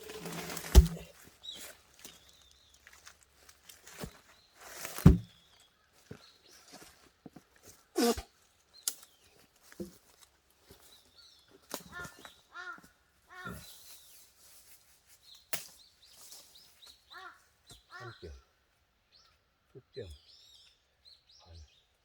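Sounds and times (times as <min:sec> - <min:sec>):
heavy thuds: 0:00.5 - 0:01.1
crows cawing: 0:11.9 - 0:13.7, 0:17.1 - 0:18.4.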